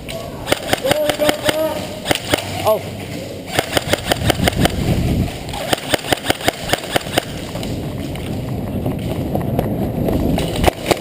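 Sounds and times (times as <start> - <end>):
airsoft gun shots: 0.5 - 2.6, 3.5 - 4.9, 5.6 - 7.4.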